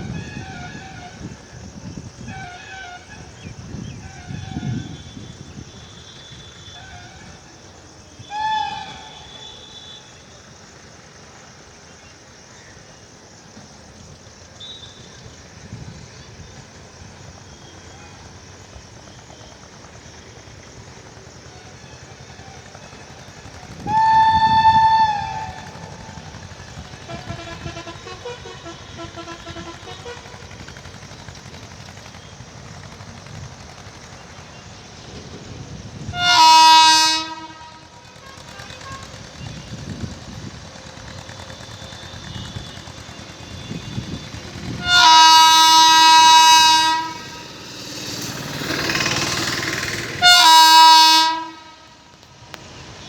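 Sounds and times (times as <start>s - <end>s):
distant horn: 0.0s - 10.5s, 21.2s - 33.0s, 34.0s - 53.0s
train rumble: 0.0s - 53.0s
locomotive horn blasts: 2.2s - 7.5s, 8.2s - 10.3s, 23.4s - 31.0s, 36.0s - 40.4s, 41.0s - 49.2s, 50.0s - 52.3s.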